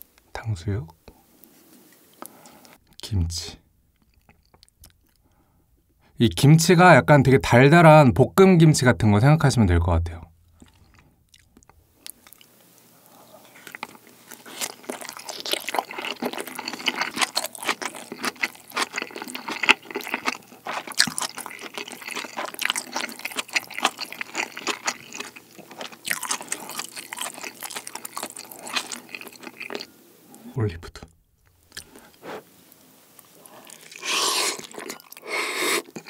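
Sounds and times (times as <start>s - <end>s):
close chewing crunches: 13.5s - 29.9s, 33.2s - 36.0s.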